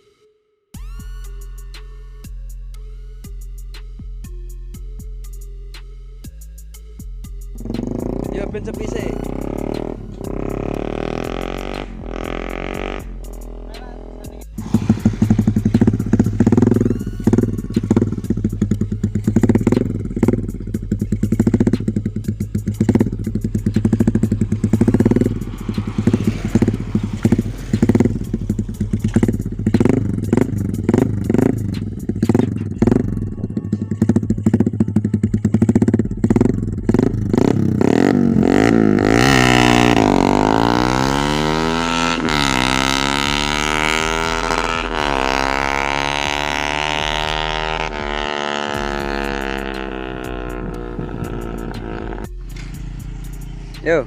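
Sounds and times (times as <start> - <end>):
motorcycle accelerating: 7.3 - 54.0
motorcycle engines revving: 7.5 - 54.0.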